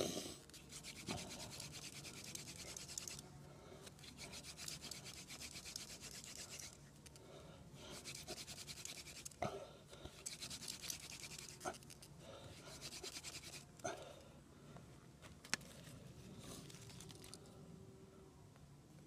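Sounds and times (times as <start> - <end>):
wood-on-wood rasping: 4.1 - 6.7, 8.0 - 9.3.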